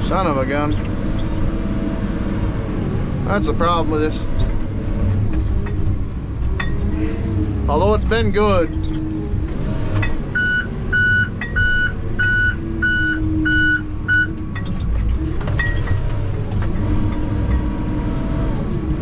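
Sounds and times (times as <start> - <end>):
diesel engine running: 0.0 - 19.0
backup alarm beeping: 10.3 - 14.4.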